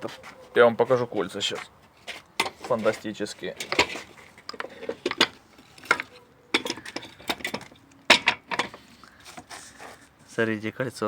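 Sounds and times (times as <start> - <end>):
metal parts clinking and knocking: 2.0 - 9.5.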